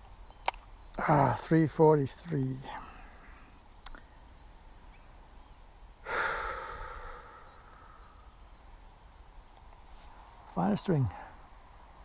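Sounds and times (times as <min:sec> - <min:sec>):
person sighing: 0:06.0 - 0:08.1.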